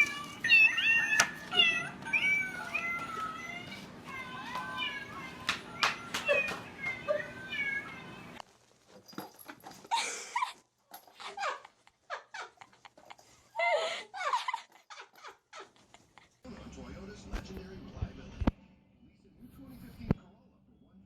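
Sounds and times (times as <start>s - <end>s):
dog whining: 0.0s - 8.4s.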